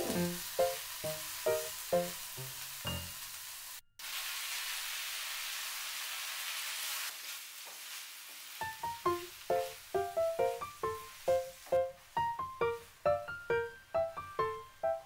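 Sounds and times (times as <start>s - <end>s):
piano music: 0.0s - 3.2s, 8.6s - 15.0s
food sizzling in a pan: 0.0s - 14.7s.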